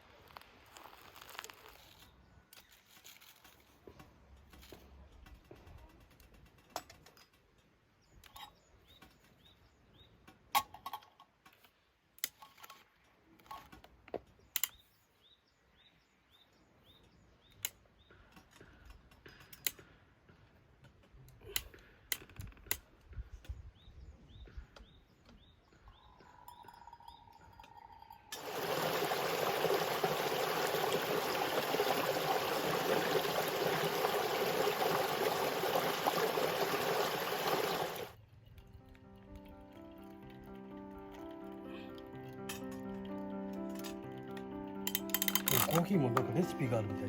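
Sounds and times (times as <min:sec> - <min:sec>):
small objects clicking: 0:44.9 - 0:46.3.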